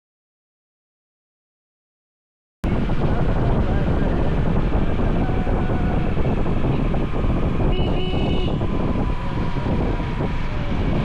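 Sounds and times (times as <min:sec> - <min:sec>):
road traffic rumble: 0:02.6 - 0:11.0
vehicle horn toot: 0:07.6 - 0:08.7.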